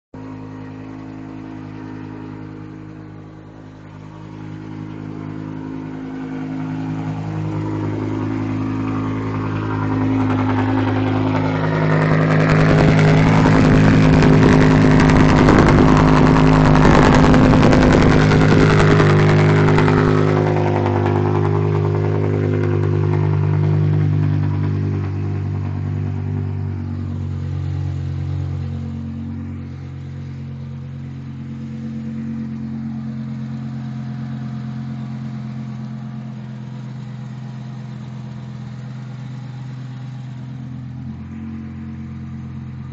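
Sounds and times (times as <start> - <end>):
raspy car engine drone: 0.2 - 42.9.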